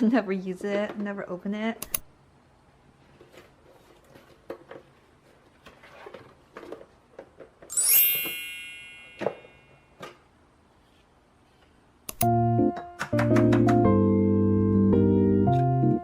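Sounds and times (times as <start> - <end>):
bright ringing chime: 7.7 - 9.9.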